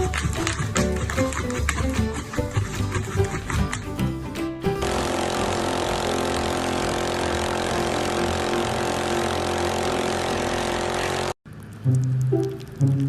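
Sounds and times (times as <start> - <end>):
motor hum: 4.8 - 11.7.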